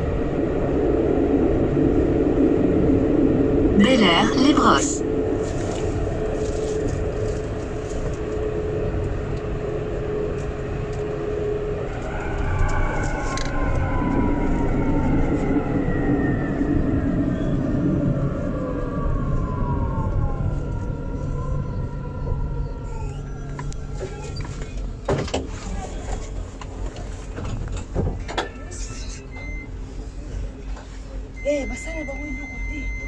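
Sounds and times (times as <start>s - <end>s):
tram rumbling: 0.0s - 33.0s.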